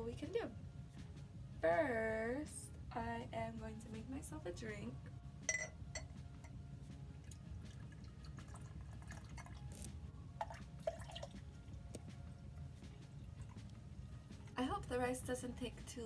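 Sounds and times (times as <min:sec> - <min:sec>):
glass clinking: 0:05.5 - 0:06.2
liquid pouring into a glass: 0:07.2 - 0:09.8, 0:10.4 - 0:11.6.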